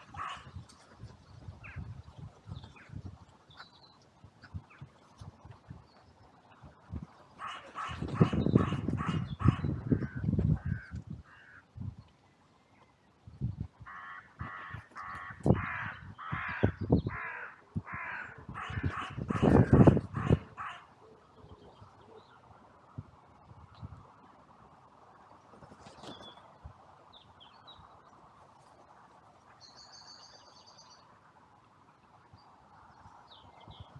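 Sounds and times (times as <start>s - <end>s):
crows cawing: 0.1s - 0.5s, 7.4s - 11.6s, 13.9s - 20.9s
low rumbling near microphone: 8.1s - 11.2s, 17.8s - 20.6s.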